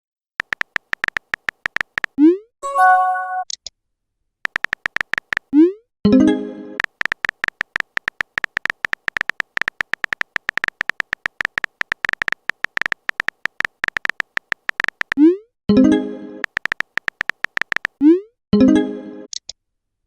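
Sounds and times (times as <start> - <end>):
electronic typing blips: 0.4 - 3.5, 4.5 - 5.7, 6.8 - 15.4, 16.4 - 18.2
message alert tone: 2.6 - 3.5.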